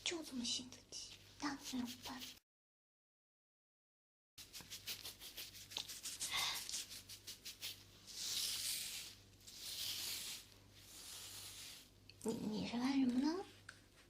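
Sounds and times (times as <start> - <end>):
rubbing close to microphone: 1.4 - 2.4, 4.4 - 11.9.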